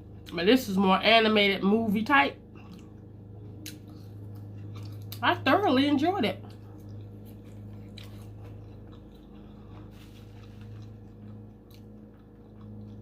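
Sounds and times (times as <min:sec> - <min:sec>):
low electrical hum: 0:00.0 - 0:13.0
person chewing fried food: 0:02.4 - 0:05.2, 0:06.4 - 0:13.0.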